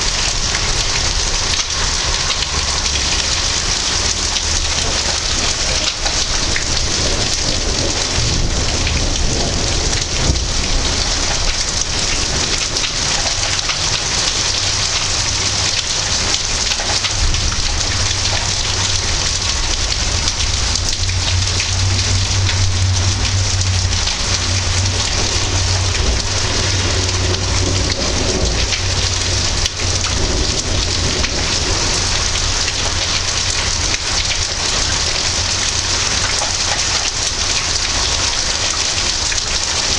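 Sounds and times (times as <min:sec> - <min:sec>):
heavy rain falling: 0:00.0 - 0:39.9
thunder rumbling: 0:00.0 - 0:39.9.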